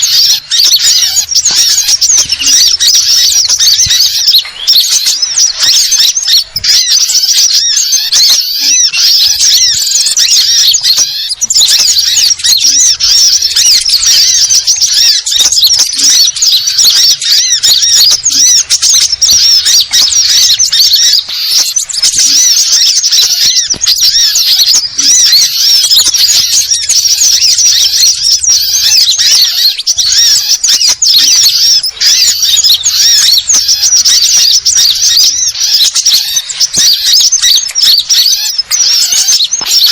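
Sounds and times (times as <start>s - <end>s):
sunbirds twittering: 0.0s - 39.9s.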